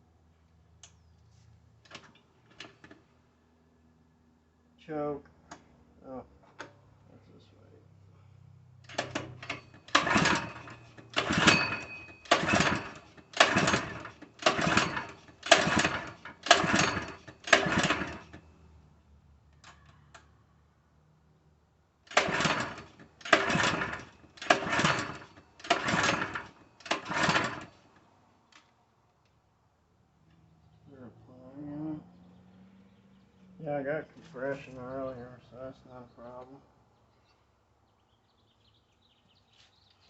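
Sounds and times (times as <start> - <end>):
recoil starter pulls: 8.8 - 18.4, 22.1 - 28.7
engine turning over: 8.8 - 18.5, 22.1 - 28.0.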